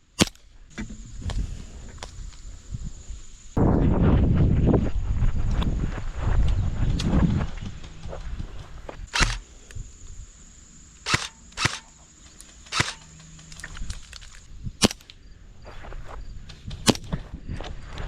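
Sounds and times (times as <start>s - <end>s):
airsoft gun shots: 0.1s - 0.5s, 9.1s - 9.4s, 11.1s - 11.9s, 12.7s - 13.1s, 14.8s - 15.1s.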